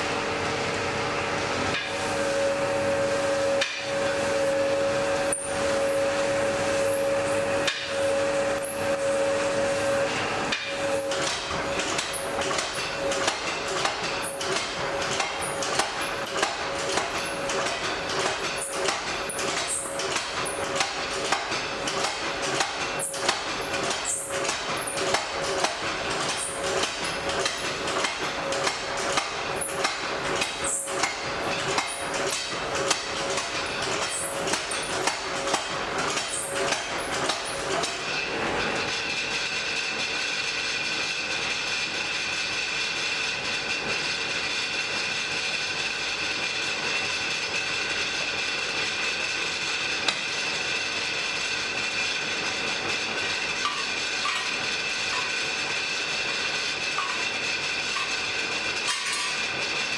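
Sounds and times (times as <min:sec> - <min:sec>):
steady hum: 0:00.0 - 0:11.1
hammer striking an anvil: 0:07.6 - 0:08.8, 0:53.6 - 0:55.4, 0:56.3 - 0:59.5.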